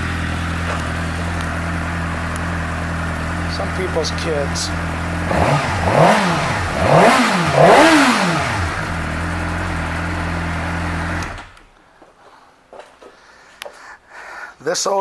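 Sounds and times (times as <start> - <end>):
motorcycle engine revving and idling: 0.0 - 11.6.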